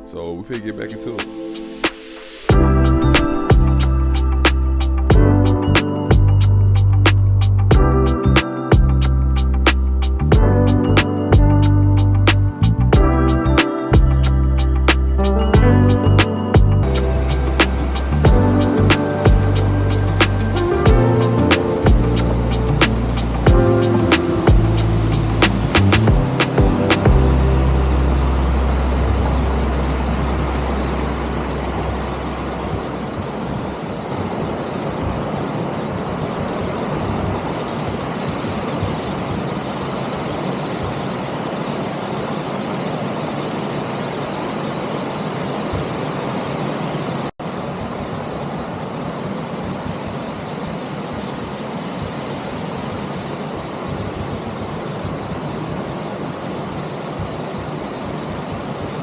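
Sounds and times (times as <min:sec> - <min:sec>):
low rumble: 0:21.9 - 0:33.3.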